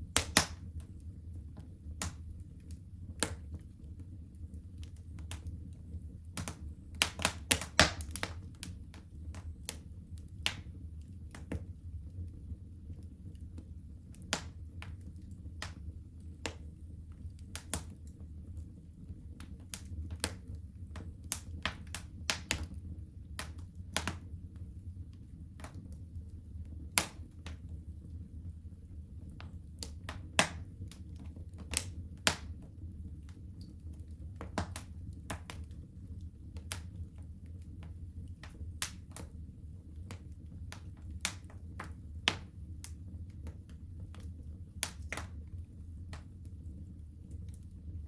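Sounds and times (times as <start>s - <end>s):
fire crackling and popping: 0.0s - 48.0s
low rumble of flames: 0.0s - 48.0s.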